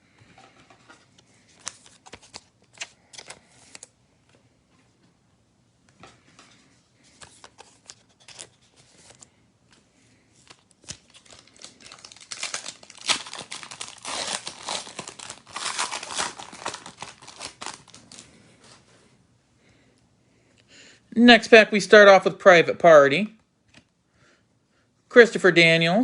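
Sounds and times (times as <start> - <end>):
wrapper tearing and crinkling: 10.5 - 18.3.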